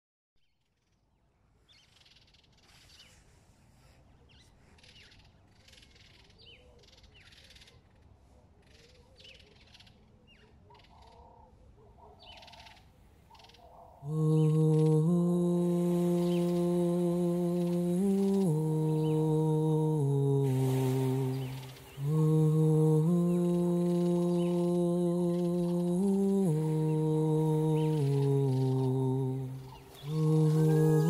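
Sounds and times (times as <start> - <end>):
faint bird calls: 0.8 - 15.1, 20.5 - 31.0
hummed vocal: 14.0 - 31.0.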